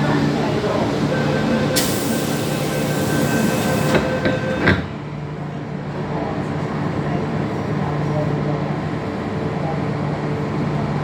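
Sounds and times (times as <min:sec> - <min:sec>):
wheel and rail hiss: 0:00.0 - 0:04.9
train motor hum: 0:00.0 - 0:05.1.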